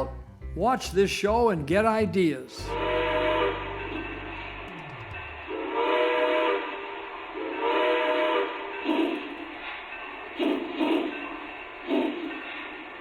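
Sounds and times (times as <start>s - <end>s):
train horn blasts: 2.6s - 4.7s, 5.4s - 8.7s
train running noise: 2.6s - 13.0s.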